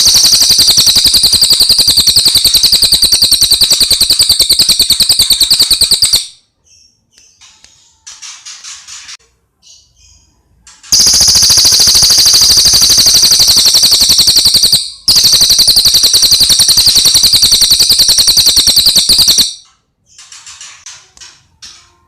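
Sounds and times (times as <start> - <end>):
fast rattling bird trill: 0.0 - 6.4, 10.9 - 19.6.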